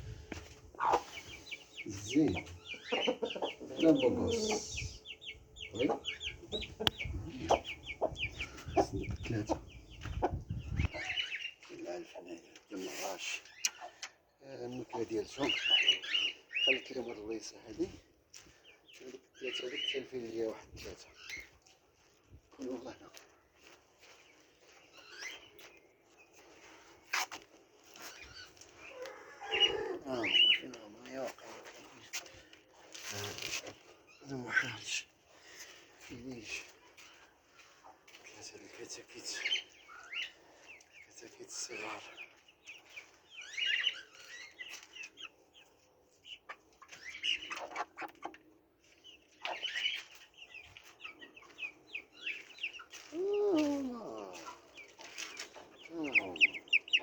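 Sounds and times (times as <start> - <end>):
hens clucking: 0.0 - 13.2, 22.6 - 57.0
chickens and chicks chirping: 0.0 - 57.0
wings flapping and scuffling: 20.8 - 29.2, 30.8 - 34.0, 40.7 - 57.0
loud chicken call: 28.9 - 30.5.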